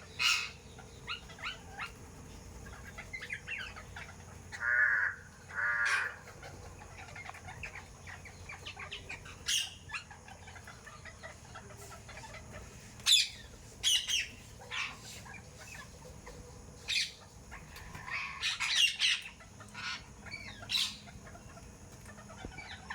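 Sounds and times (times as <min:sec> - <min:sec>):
birds calling and chirping: 0:00.0 - 0:22.9.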